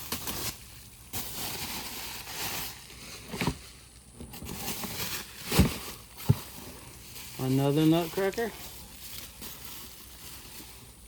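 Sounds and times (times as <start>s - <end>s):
rustling unpacking box: 0.0s - 11.0s
dull thumps: 5.5s - 6.6s.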